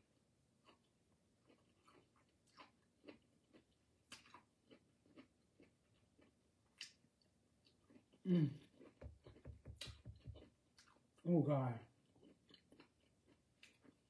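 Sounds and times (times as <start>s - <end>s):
wet chewing and lip smacks: 1.5s - 7.0s, 7.6s - 11.2s, 12.0s - 14.0s
person humming mm: 8.2s - 8.6s.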